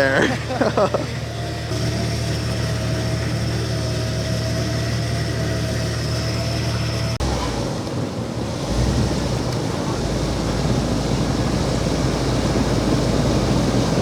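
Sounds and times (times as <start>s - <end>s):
steady whine: 0.0s - 8.5s
truck engine idling: 0.0s - 14.0s.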